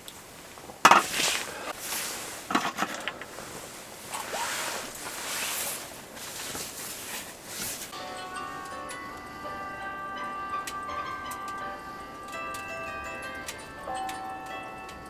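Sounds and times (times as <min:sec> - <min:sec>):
rustling and scraping: 0:00.0 - 0:08.0.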